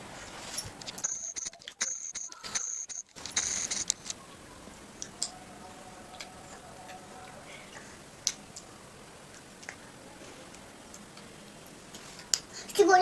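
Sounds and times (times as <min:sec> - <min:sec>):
faint clicks and ticks: 0:00.2 - 0:04.3, 0:09.3 - 0:12.8.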